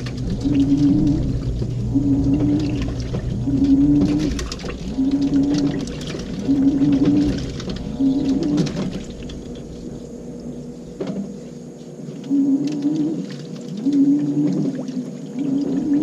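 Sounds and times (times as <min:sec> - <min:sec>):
clothes churning: 0:00.0 - 0:10.3
washing machine motor whining: 0:00.0 - 0:16.0
water sloshing: 0:00.0 - 0:16.0.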